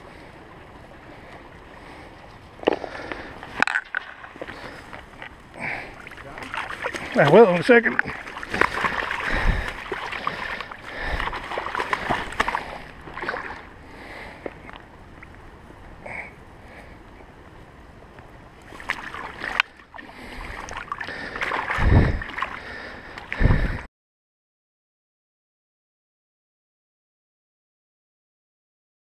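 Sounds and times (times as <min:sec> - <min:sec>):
stream water splashing: 0:00.0 - 0:15.3, 0:18.6 - 0:23.8.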